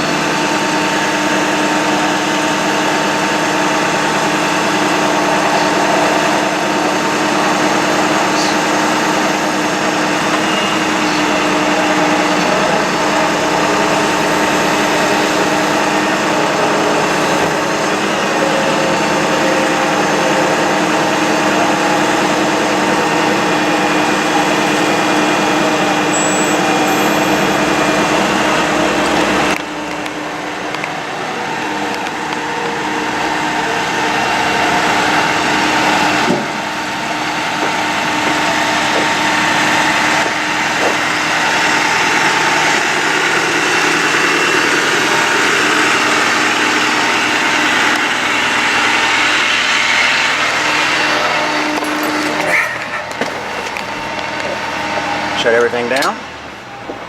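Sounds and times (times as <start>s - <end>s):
truck hydraulic drone with whine: 0.0s - 57.0s.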